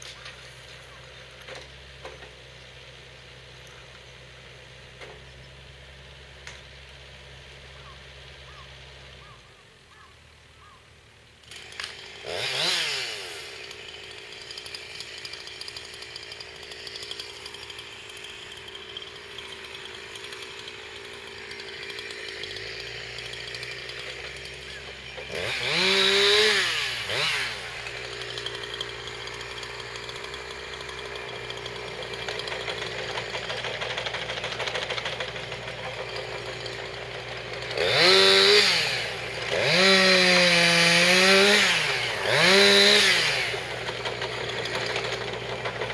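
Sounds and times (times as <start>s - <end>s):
chainsaw revving: 11.4s - 45.9s.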